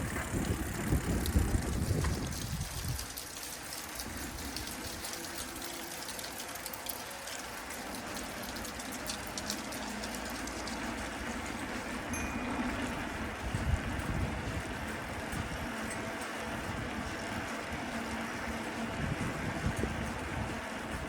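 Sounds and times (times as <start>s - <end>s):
wind on microphone: 0.0s - 3.2s, 12.8s - 16.0s, 18.8s - 21.0s
bicycle tyres on road: 0.0s - 21.0s.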